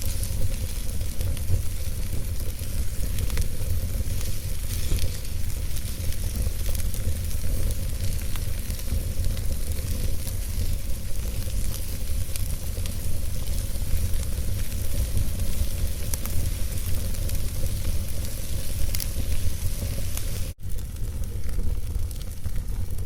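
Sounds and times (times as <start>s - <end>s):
logs crackling and popping: 0.0s - 23.0s
low rumble of flames: 0.0s - 23.0s.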